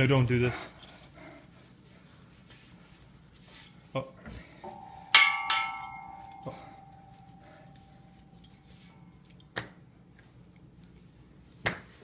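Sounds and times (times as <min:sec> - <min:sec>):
struck metal ringing: 0:04.6 - 0:08.6.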